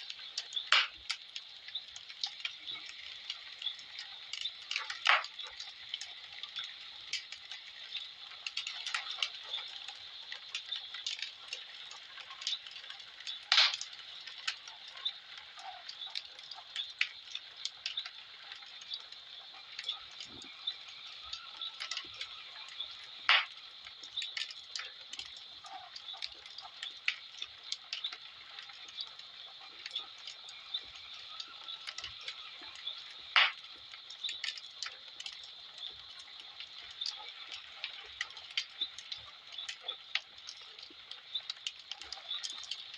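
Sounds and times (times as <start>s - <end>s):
faint steady hiss: 0.0s - 42.9s
wood fire crackling: 0.0s - 42.9s
loud fire snap: 0.5s - 1.2s, 4.3s - 5.7s, 13.3s - 14.6s, 23.2s - 28.2s, 33.3s - 35.4s.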